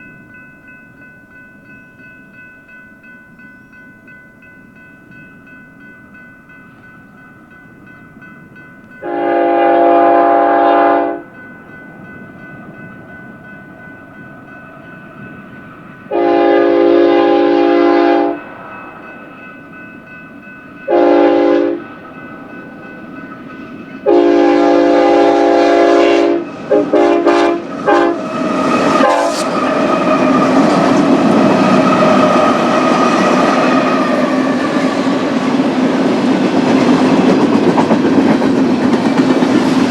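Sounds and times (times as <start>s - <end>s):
train rumbling past on rails: 0.0s - 39.9s
locomotive air horn: 9.0s - 11.3s, 16.1s - 18.4s, 20.9s - 21.8s, 24.0s - 30.4s.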